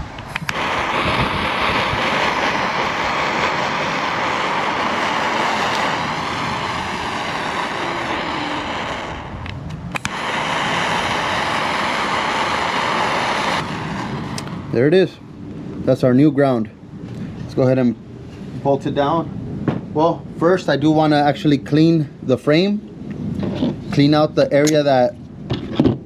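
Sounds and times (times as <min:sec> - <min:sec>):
heat gun blowing hiss: 0:00.3 - 0:14.8.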